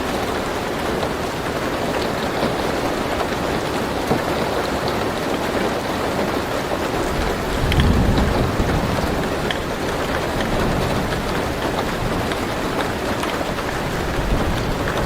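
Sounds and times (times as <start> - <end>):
rain on a car roof: 0.0 - 15.0
low thunder rumble: 7.0 - 15.0.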